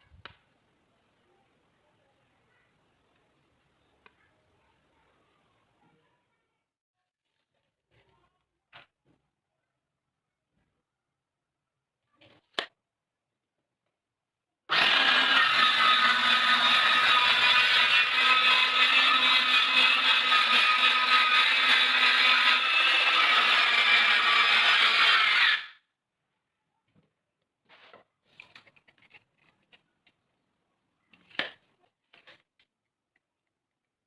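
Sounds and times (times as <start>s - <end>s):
power tool whining on wood: 14.7s - 25.8s.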